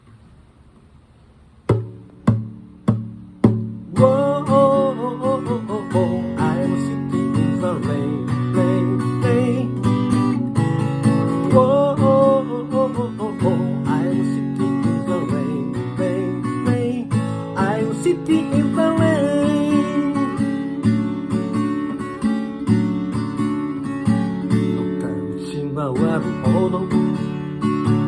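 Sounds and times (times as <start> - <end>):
acoustic guitar strumming: 1.6 - 28.0.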